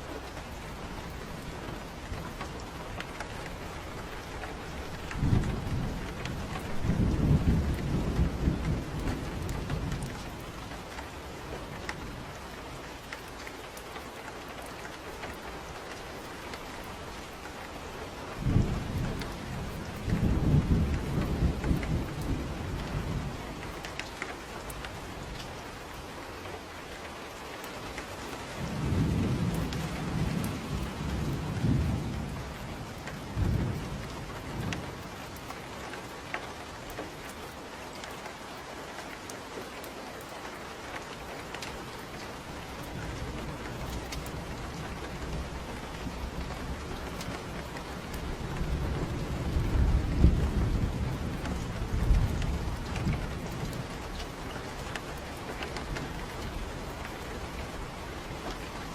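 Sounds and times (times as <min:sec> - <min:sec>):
steady rain falling: 0:00.0 - 0:58.9
low thunder rolling: 0:18.4 - 0:23.4, 0:28.6 - 0:35.2, 0:42.6 - 0:58.9.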